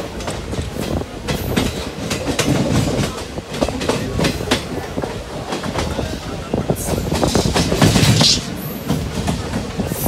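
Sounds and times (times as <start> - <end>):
train wheels clattering on rails: 0.0 - 10.0
steady rushing noise: 7.2 - 9.0.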